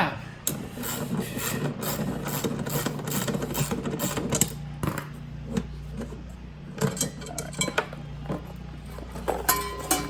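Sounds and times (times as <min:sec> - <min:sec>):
hand tools clicking and scraping metal: 0:06.8 - 0:10.0.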